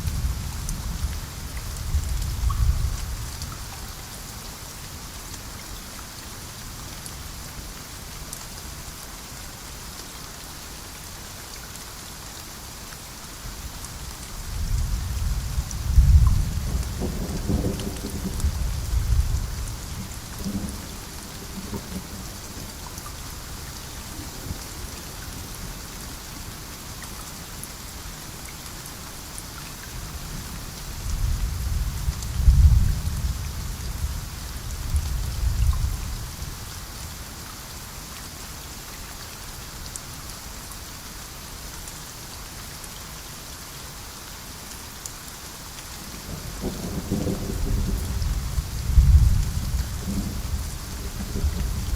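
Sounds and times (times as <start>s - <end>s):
steady rain: 0.0s - 51.9s
rolling thunder: 31.2s - 33.4s, 46.6s - 51.9s.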